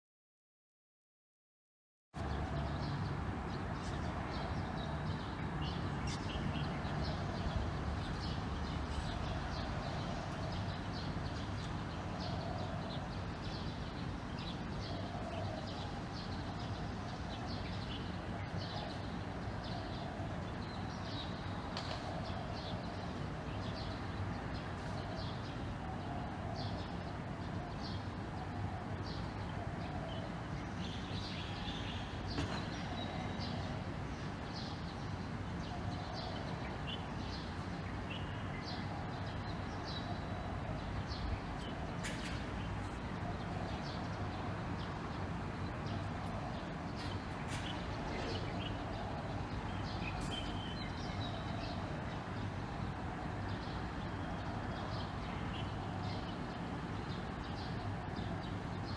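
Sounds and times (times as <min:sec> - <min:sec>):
small birds chirping: 0:02.2 - 0:23.0.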